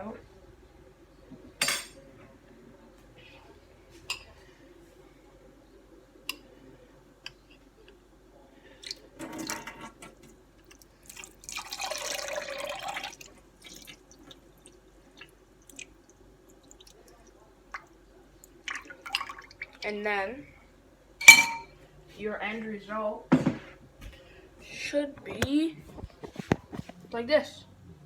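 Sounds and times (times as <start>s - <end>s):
liquid pouring and splashing: 10.7s - 17.9s, 18.6s - 19.8s
dripping: 10.7s - 19.9s.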